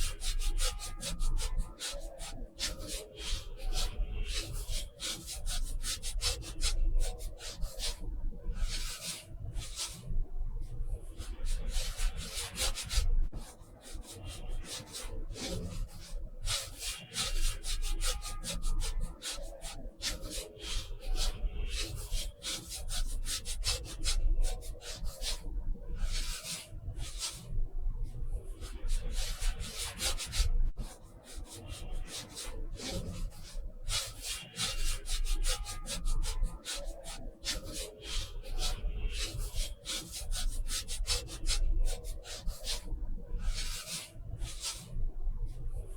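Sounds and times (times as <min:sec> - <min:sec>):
brush scrubbing on paper: 0:28.7 - 0:44.9.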